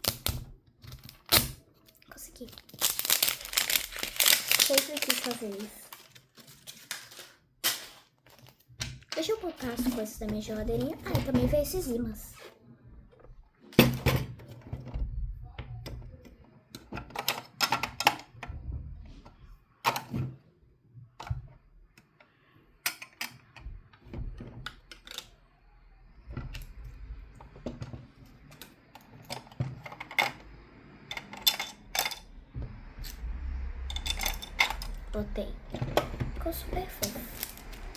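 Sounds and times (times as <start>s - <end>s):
plastic toy pieces clicking: 2.4s - 8.5s.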